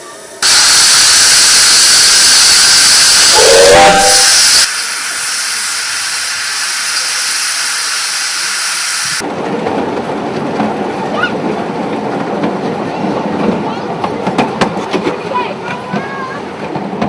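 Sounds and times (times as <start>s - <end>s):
steam locomotive hissing steam: 0.0s - 9.2s
miniature train rumbling and rattling: 3.0s - 17.0s.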